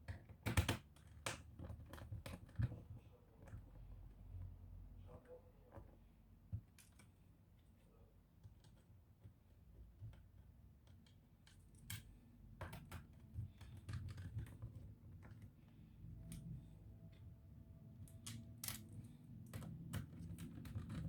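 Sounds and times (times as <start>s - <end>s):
clicks of laptop parts and tools: 0.0s - 2.8s, 10.0s - 15.4s, 18.0s - 21.0s.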